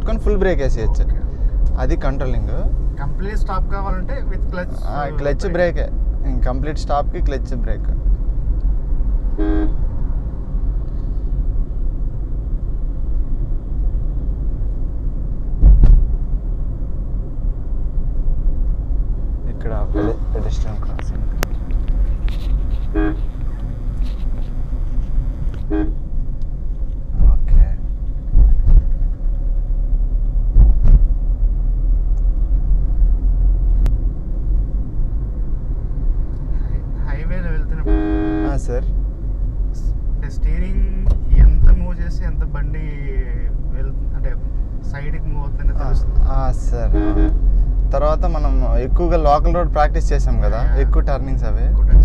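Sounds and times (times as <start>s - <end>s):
car road rumble from inside: 0.0s - 52.0s
short car horn toot: 9.4s - 9.8s, 19.9s - 20.4s, 22.8s - 23.9s, 25.5s - 26.0s, 37.8s - 38.6s, 46.9s - 47.5s.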